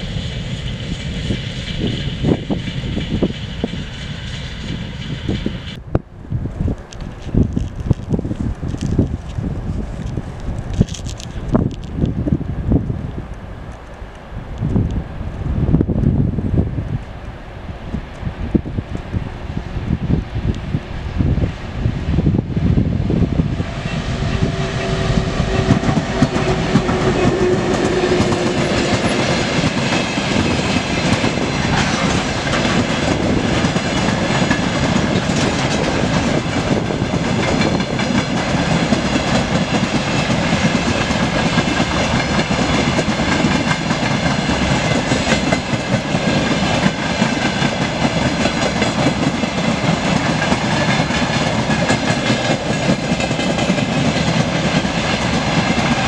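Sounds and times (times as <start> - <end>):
train wheels clattering over rails: 23.4 - 56.0.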